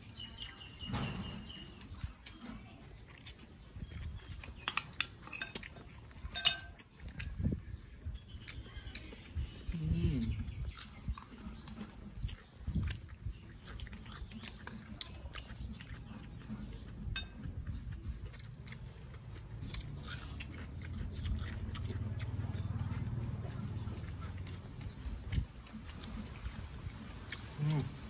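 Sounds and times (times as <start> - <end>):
people chewing food: 0.0 - 28.0
cutlery clicking on plates: 4.6 - 6.8, 17.1 - 17.4.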